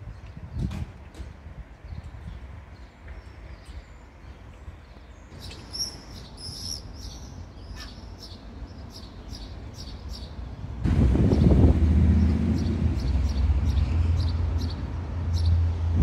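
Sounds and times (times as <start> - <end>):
small bird chirping: 5.3 - 10.4.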